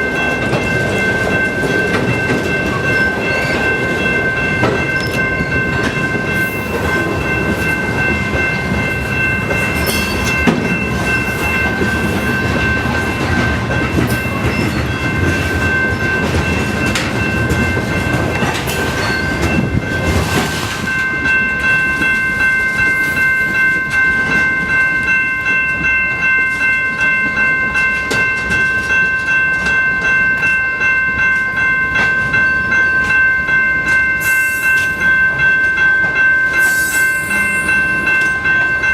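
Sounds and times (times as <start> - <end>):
high-pitched ringing tones: 0.0 - 20.1, 20.9 - 38.9
train wheels clattering over rail joints: 0.3 - 21.4.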